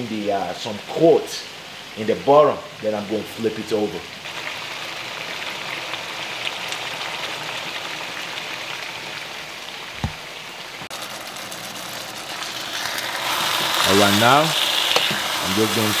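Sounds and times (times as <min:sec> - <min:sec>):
chicken sizzling in oil: 0:00.1 - 0:16.0
dull thump: 0:10.0 - 0:10.3.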